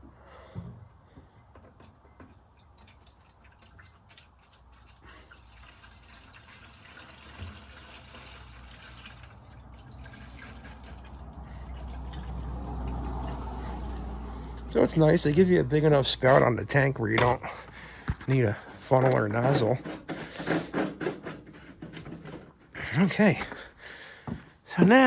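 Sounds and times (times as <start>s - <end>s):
fuel pouring into plastic tank: 1.6s - 14.4s.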